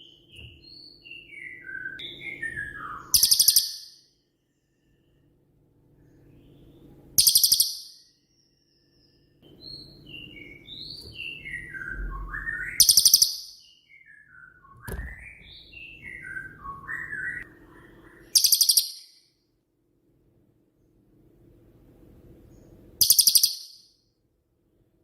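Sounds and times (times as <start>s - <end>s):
songbird whistled notes: 0.0s - 4.0s, 6.2s - 19.2s, 23.0s - 23.9s.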